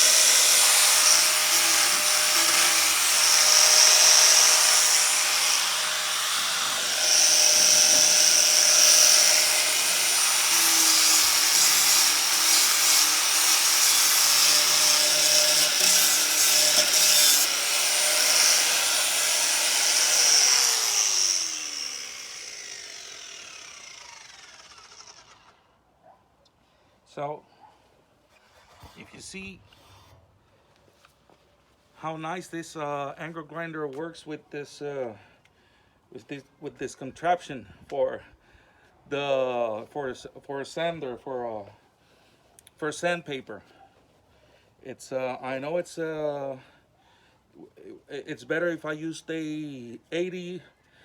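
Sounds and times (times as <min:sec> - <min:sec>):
angle grinder sanding wood: 0:00.0 - 0:25.6
grinder winding down: 0:00.0 - 0:25.7.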